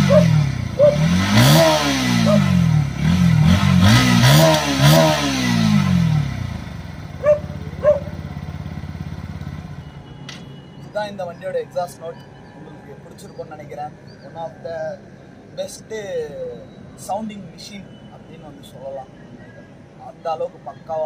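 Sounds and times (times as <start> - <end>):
motorcycle engine revving: 0.0 - 10.1.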